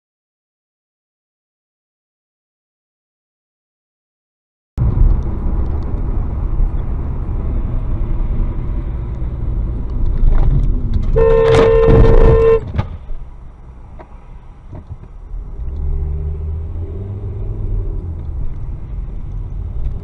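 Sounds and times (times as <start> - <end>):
car driving rumble: 4.8 - 20.0
car horn honking: 11.2 - 12.7.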